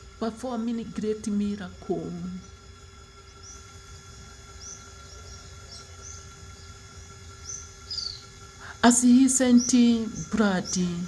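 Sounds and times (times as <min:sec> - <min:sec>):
electrical hum: 0:00.0 - 0:11.0
bird chirps: 0:07.4 - 0:08.3.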